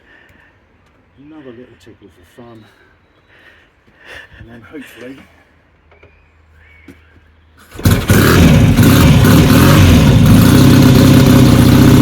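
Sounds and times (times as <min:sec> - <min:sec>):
motorcycle engine kick-started and idling: 0:07.7 - 0:12.0.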